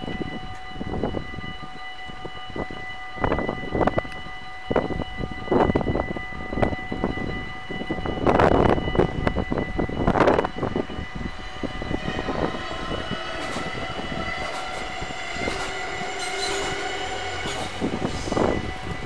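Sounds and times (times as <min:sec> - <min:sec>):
level crossing warning tones: 0:00.0 - 0:19.0
train drive whine: 0:00.0 - 0:19.0
wind gust on microphone: 0:04.7 - 0:19.0
train wheels clicking over rails: 0:12.0 - 0:19.0.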